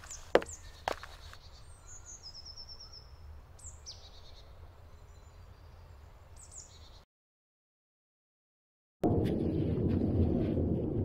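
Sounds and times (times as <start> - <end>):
woodland birds calling: 0.0 - 7.0
bird trill: 0.1 - 7.0.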